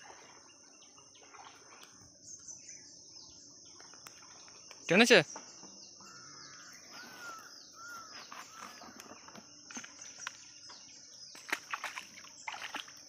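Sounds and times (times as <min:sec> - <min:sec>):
birds chirping and calling: 0:00.1 - 0:12.8.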